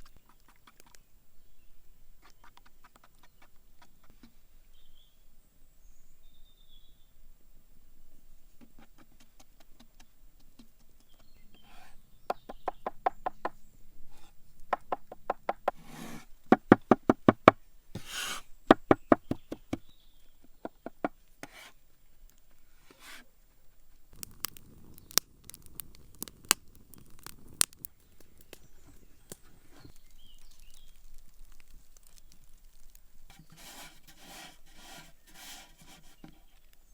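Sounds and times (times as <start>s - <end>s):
soft rustle: 26.3s - 36.9s.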